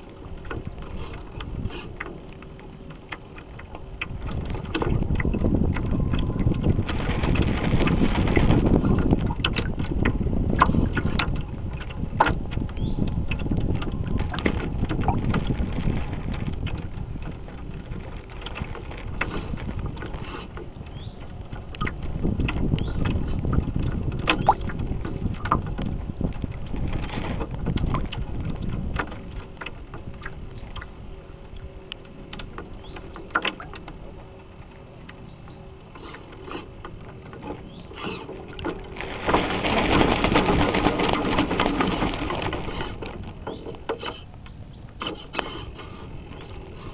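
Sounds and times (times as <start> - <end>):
wind buffeting microphone: 0.0 - 2.0, 3.8 - 31.7, 37.2 - 45.0
faint steady hum: 0.0 - 46.9
water washing against hull: 0.0 - 46.9
small clicks and knocks: 31.9 - 34.0.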